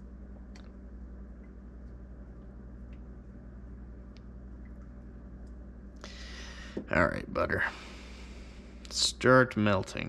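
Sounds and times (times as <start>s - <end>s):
steady low hum: 0.0s - 10.0s
faint light clicks: 1.4s - 3.1s, 4.1s - 6.1s.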